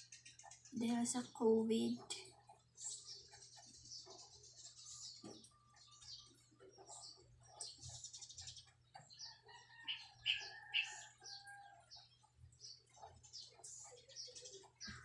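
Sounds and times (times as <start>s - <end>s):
small birds chirping: 0.0s - 15.0s
rooster crowing: 9.3s - 11.9s.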